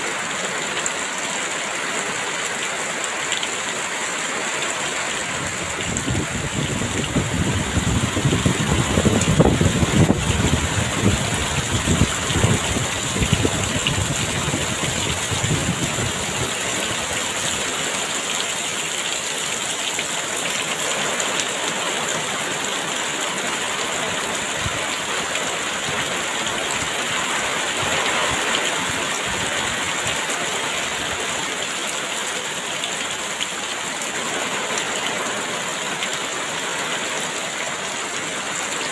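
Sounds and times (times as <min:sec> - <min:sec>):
heavy rain falling: 0:00.0 - 0:38.9
strong wind gusts: 0:05.3 - 0:17.2.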